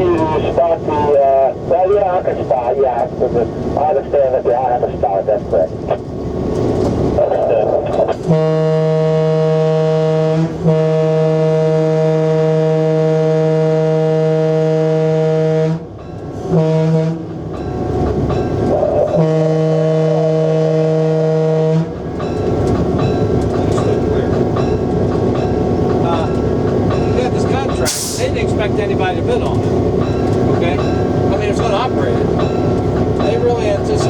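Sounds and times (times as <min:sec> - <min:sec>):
train running noise: 0:00.0 - 0:34.0
locomotive air horn blasts: 0:08.2 - 0:17.3, 0:19.0 - 0:22.0.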